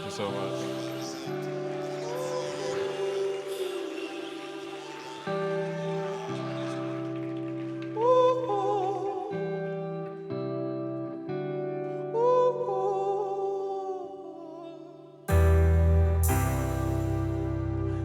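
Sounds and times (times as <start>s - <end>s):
wordless vocal line: 0.0s - 7.4s
live band sustained chords: 15.3s - 18.0s.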